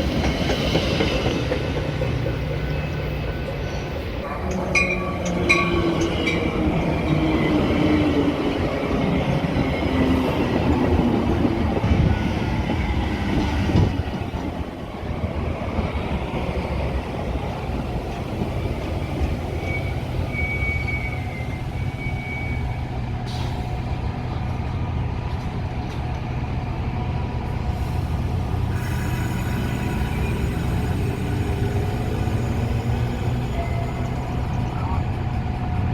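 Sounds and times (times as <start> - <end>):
train rumbling on rails: 0.0 - 35.9
faint high wheel squeal: 19.3 - 23.0, 28.7 - 35.2.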